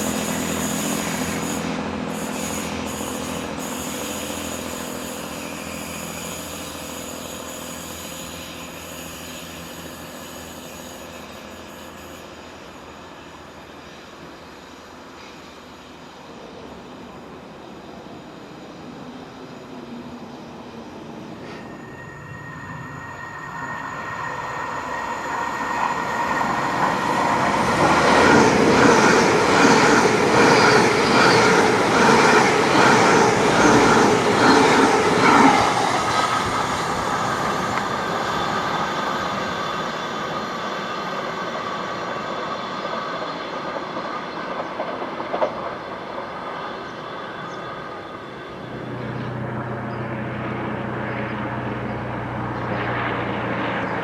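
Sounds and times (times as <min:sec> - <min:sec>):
passenger train passing: 0:00.0 - 0:54.0
steady whine: 0:00.0 - 0:54.0
train wheels clattering over rail joints: 0:42.8 - 0:46.4.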